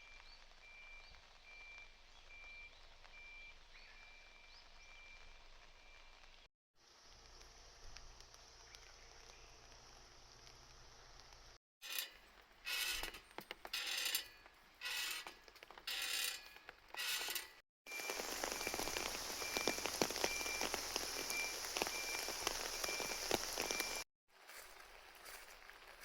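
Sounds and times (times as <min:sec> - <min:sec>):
heavy rain pattering: 0:17.9 - 0:24.0.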